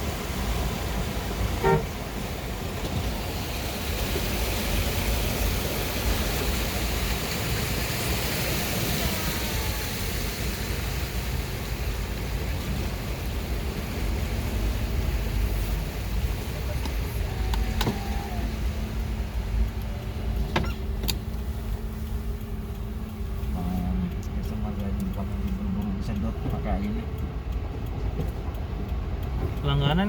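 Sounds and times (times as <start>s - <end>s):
car road and engine noise: 0.0s - 30.0s
car horn toot: 1.5s - 2.2s.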